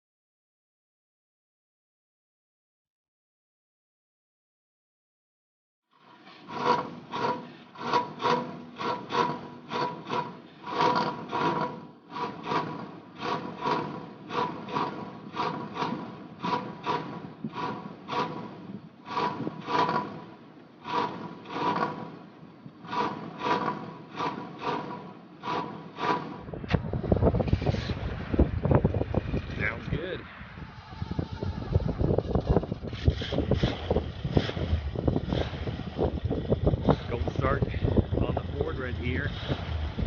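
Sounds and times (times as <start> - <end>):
rasping strokes: 6.0 - 22.2, 22.8 - 26.5.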